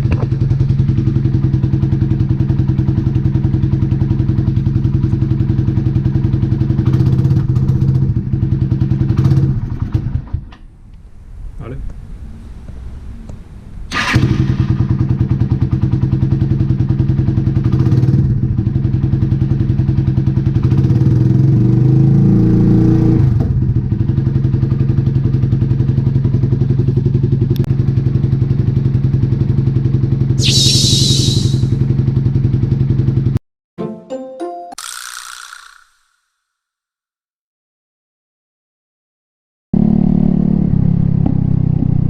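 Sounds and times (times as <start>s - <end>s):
motorcycle engine idling and revving: 0.0s - 30.4s, 39.8s - 42.0s
short hiss: 30.4s - 31.8s.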